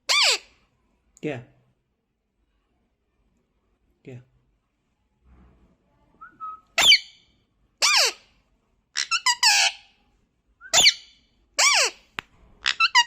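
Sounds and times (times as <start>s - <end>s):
parrot shrill calls: 0.0s - 0.5s, 6.8s - 7.2s, 7.8s - 8.2s, 9.0s - 9.9s, 10.7s - 12.0s, 12.6s - 13.0s.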